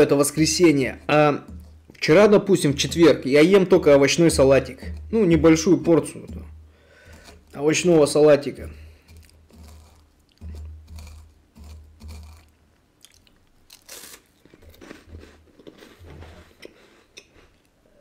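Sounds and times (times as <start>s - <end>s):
person crunching a crisp wafer: 9.1s - 17.7s.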